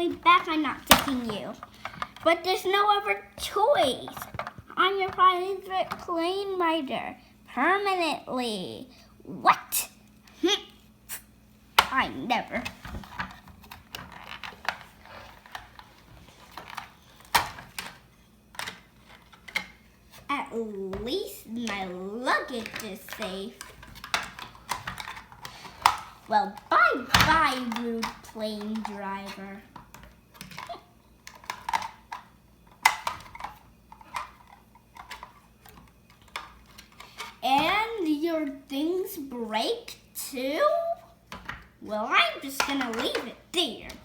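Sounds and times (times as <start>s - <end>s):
plastic toys clicking: 22.6s - 37.3s.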